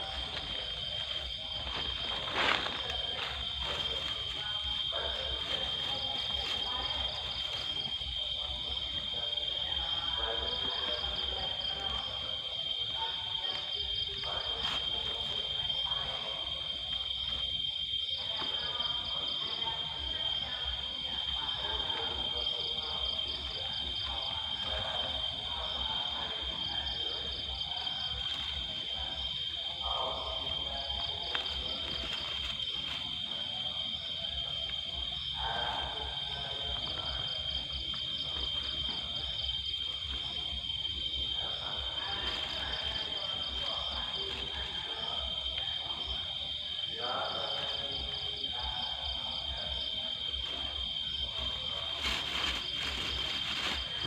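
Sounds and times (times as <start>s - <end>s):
insects droning: 0.0s - 54.0s
rustle: 0.1s - 9.0s, 29.8s - 33.5s, 50.4s - 54.0s.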